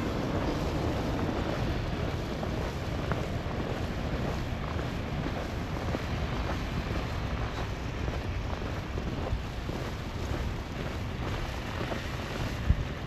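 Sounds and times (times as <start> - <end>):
footsteps crunching in snow: 0.0 - 13.0
strong wind on microphone: 0.0 - 13.0.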